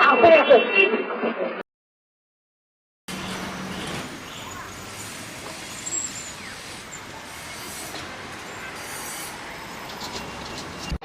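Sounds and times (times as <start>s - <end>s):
traffic noise: 3.1s - 11.0s.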